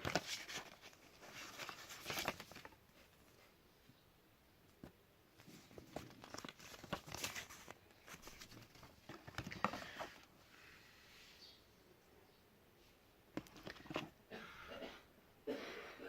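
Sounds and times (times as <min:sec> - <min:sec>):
packaging crinkling and rustling: 0:00.0 - 0:02.8, 0:05.4 - 0:10.3.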